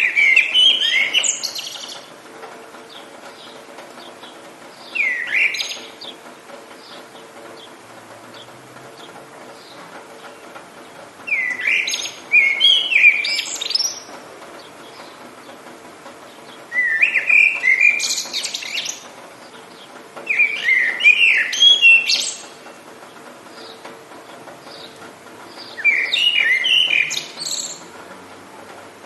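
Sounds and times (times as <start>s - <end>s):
songbird chirping and whistling: 0.0s - 2.0s, 4.8s - 6.2s, 11.3s - 14.1s, 16.7s - 19.0s, 20.3s - 22.5s, 25.6s - 27.8s
faint rain hiss: 0.0s - 29.0s.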